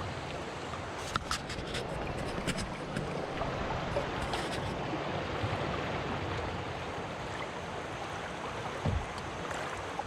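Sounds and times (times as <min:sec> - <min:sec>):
river water running: 0:00.0 - 0:10.0
low thump: 0:08.8 - 0:09.1.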